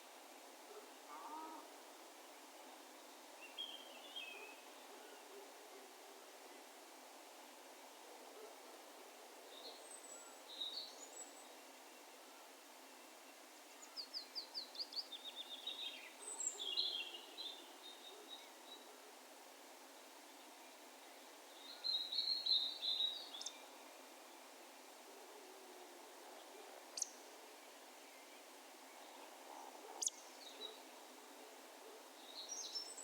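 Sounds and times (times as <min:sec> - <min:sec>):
faint background hiss: 0:00.0 - 0:33.0
distant songbirds calling: 0:09.5 - 0:19.0, 0:19.9 - 0:24.7, 0:26.9 - 0:33.0.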